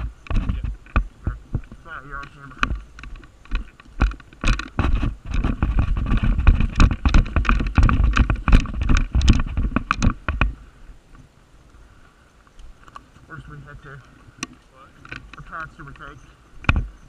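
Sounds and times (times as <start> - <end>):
camera handling knocks and rubbing: 0.0 - 10.6, 14.4 - 17.0.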